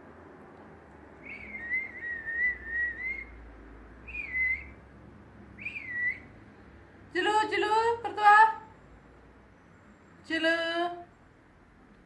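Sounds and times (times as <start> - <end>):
person whistling: 1.2 - 3.3, 5.6 - 6.3.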